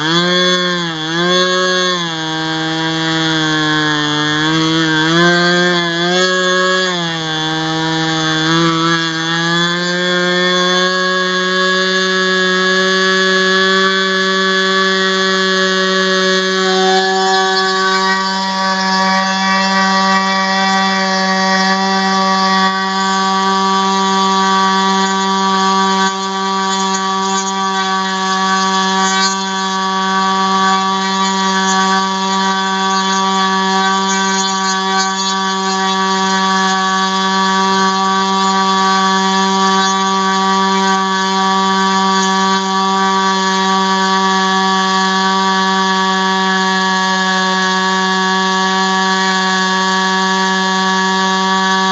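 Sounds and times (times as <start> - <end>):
model engine high-pitched buzz: 0.0 - 51.9.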